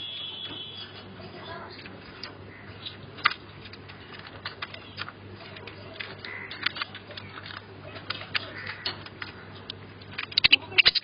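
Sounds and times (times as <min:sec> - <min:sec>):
budgies pecking on cage toys: 0:00.3 - 0:11.0.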